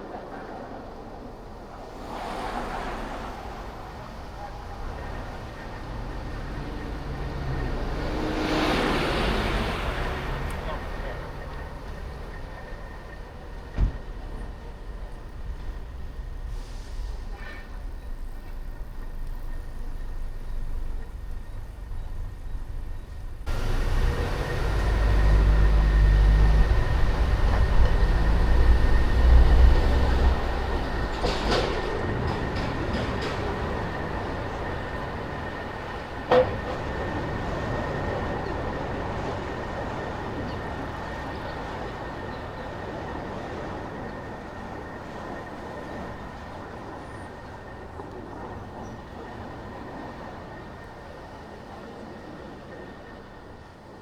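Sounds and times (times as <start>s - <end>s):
low road rumble: 0.0s - 53.2s.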